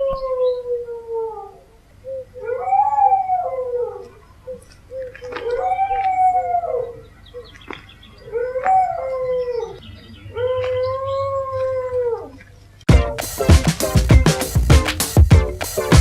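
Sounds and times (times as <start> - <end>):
dogs howling: 0.0 - 4.2, 5.2 - 7.5, 8.2 - 12.4
dog yelping: 2.4 - 4.2, 5.3 - 7.0.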